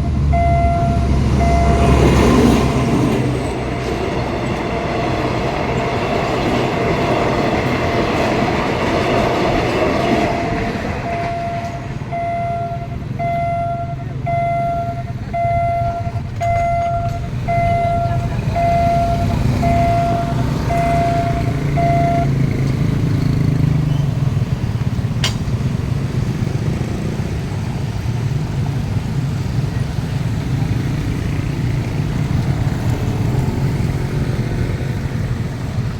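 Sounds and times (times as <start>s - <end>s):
level crossing warning beeps: 0.0s - 2.7s, 10.1s - 24.5s
road vehicle engines rumbling: 0.0s - 35.9s
train rolling past: 0.0s - 35.9s.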